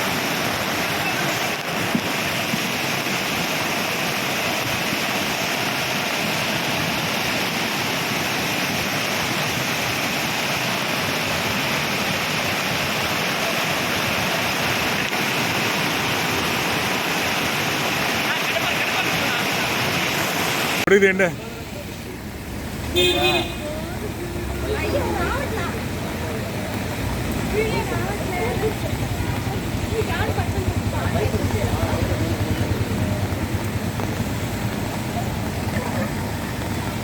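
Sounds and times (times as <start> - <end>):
floodwater rushing: 0.0 - 37.0.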